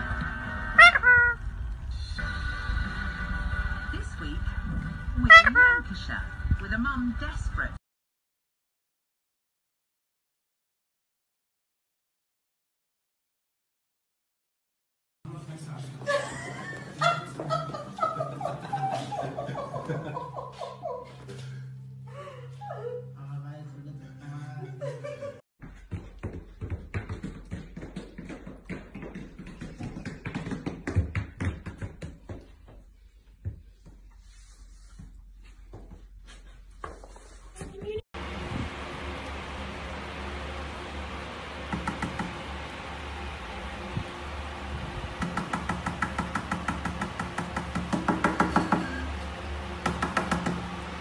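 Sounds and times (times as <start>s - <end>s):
booted dog feet tapping on stairs: 25.6s - 34.1s.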